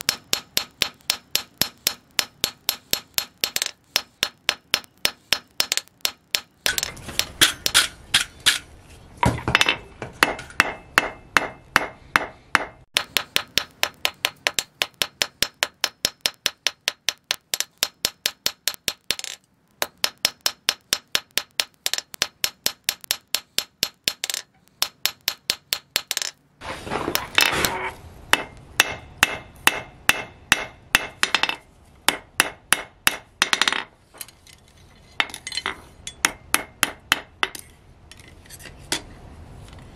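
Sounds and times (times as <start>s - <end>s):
hammer striking steel on anvil: 0.0s - 8.7s, 9.5s - 26.3s, 27.7s - 33.9s, 35.2s - 37.7s.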